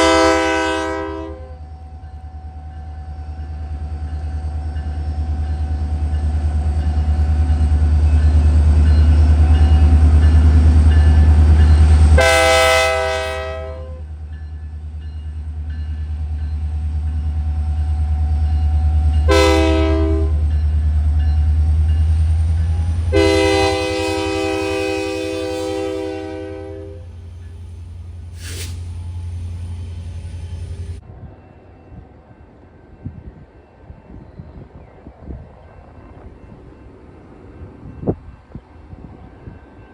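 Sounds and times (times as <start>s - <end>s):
locomotive air horn blasts: 0.0s - 1.6s, 12.2s - 14.1s, 19.3s - 20.5s, 23.0s - 27.1s
diesel locomotive engine rumble: 0.0s - 39.9s.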